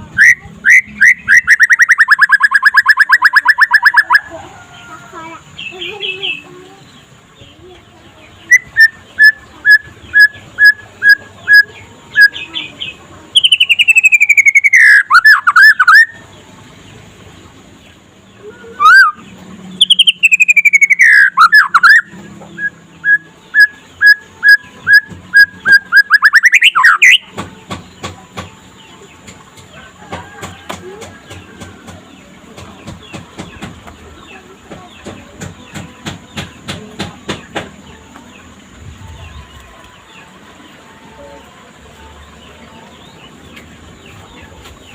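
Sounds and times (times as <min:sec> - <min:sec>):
bird singing whistled notes: 0:00.0 - 0:04.2, 0:08.4 - 0:12.7, 0:13.3 - 0:16.2, 0:18.7 - 0:27.4
bird trills: 0:00.1 - 0:04.3, 0:08.5 - 0:16.2, 0:18.6 - 0:28.1.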